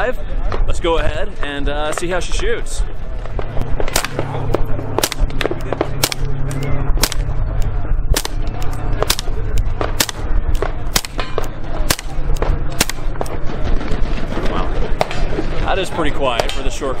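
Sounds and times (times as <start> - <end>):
steady low hum: 0.0 - 17.0
suppressed rifle shots: 3.8 - 6.3, 8.1 - 13.4.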